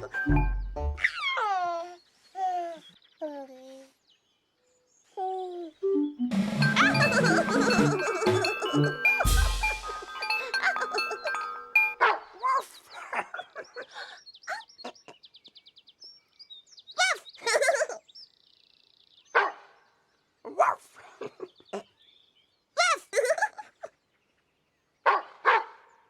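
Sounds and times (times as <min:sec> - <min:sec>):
birds chirping: 0:03.9 - 0:19.4
dog barking: 0:19.4 - 0:19.7, 0:25.1 - 0:25.9.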